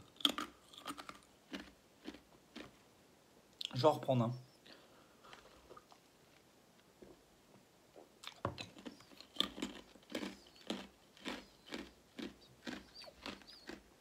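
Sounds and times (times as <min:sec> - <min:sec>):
person chewing: 0:00.0 - 0:02.8, 0:08.0 - 0:14.0.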